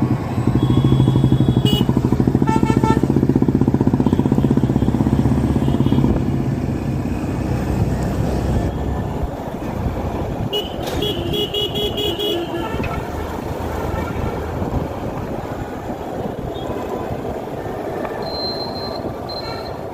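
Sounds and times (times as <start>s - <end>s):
motorcycle engine running: 0.0s - 8.6s
vehicle horn beeping rapidly: 0.6s - 3.1s, 10.5s - 13.1s.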